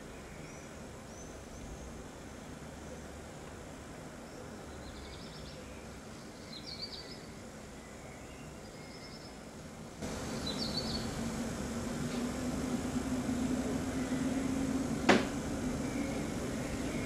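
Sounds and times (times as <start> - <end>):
small birds chirping: 0.0 - 11.6, 13.2 - 17.0
outdoor background noise: 0.0 - 17.0
steady low hum: 9.3 - 17.0.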